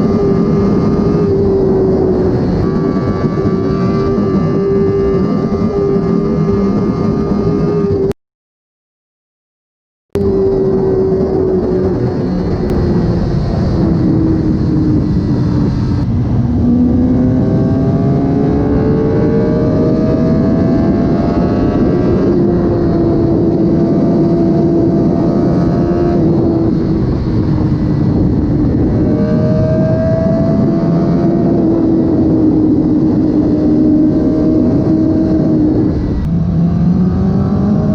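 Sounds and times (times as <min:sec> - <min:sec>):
wind noise: 0:00.0 - 0:08.1, 0:10.2 - 0:37.9
motorcycle engine accelerating: 0:00.0 - 0:08.2, 0:10.2 - 0:37.9.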